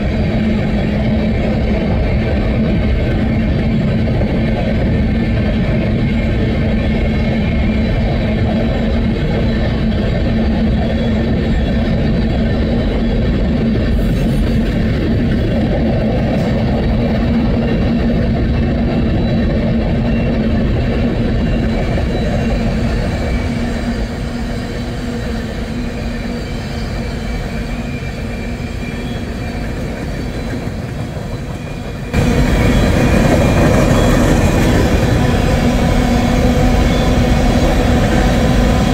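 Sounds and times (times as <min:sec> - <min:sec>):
train wheels rumbling on track: 0:00.0 - 0:38.9.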